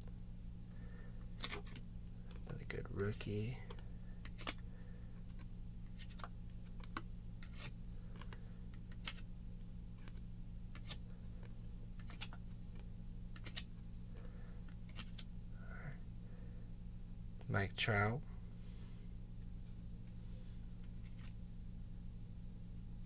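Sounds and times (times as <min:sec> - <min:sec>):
low electrical hum: 0:00.0 - 0:23.0
cards being flipped through: 0:01.2 - 0:02.5, 0:03.6 - 0:09.3, 0:09.9 - 0:15.3, 0:20.8 - 0:21.4.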